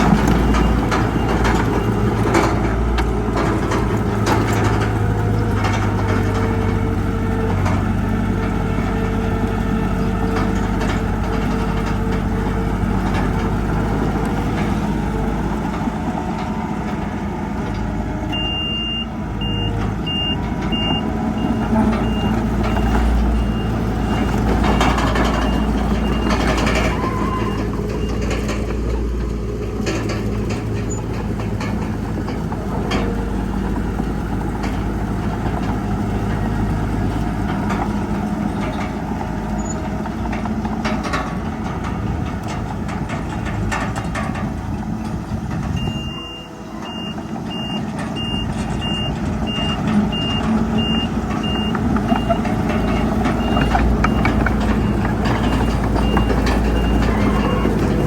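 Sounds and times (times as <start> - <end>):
diesel machinery running: 0.0 - 58.0
reversing alarm beeping: 18.3 - 28.6, 45.8 - 58.0.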